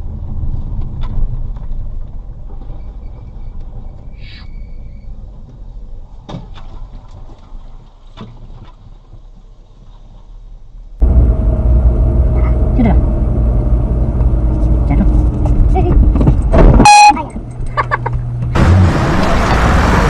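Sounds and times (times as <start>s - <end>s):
vehicle rumbling on road: 0.0s - 20.0s
brief squeak: 2.6s - 5.2s.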